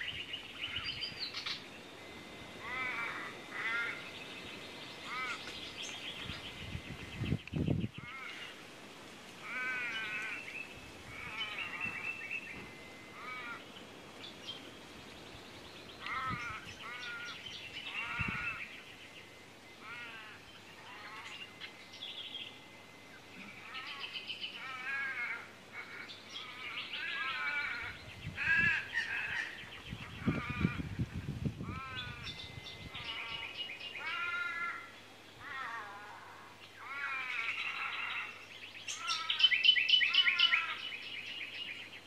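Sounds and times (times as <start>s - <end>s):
wild birds calling: 0.0s - 42.0s.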